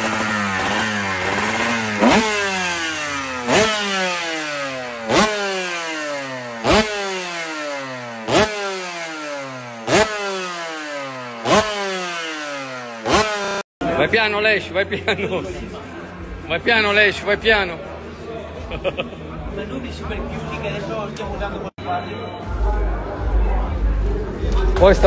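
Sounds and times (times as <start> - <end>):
two-stroke engine throttle blips: 0.0 - 13.7.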